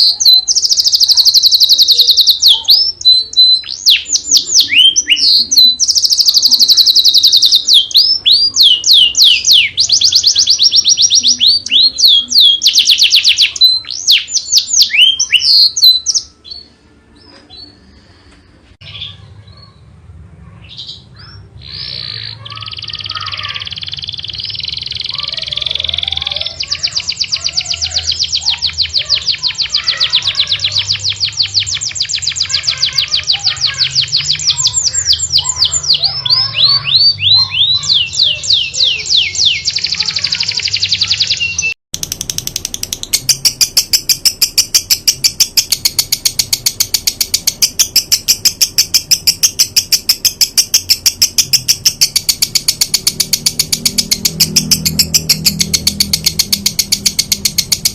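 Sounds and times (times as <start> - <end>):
songbird whistled trills: 0.0 - 18.6, 20.8 - 57.9
rapid buzzing trill: 42.0 - 57.9.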